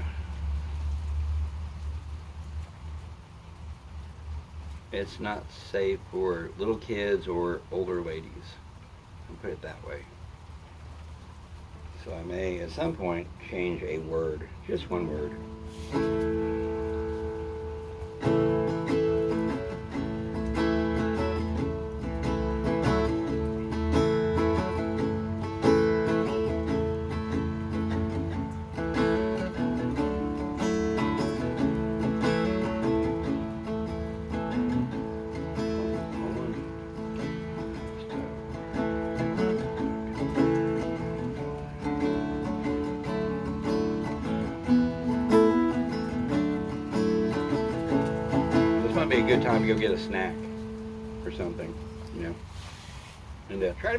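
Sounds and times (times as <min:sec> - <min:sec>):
acoustic guitar strumming chords: 0:12.2 - 0:53.0.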